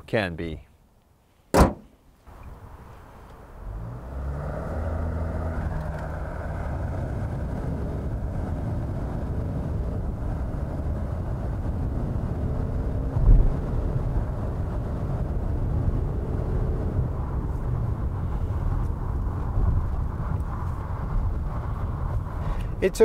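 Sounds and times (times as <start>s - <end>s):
low thump at gear shift: 1.5s - 2.0s
diesel engine accelerating: 3.4s - 23.0s.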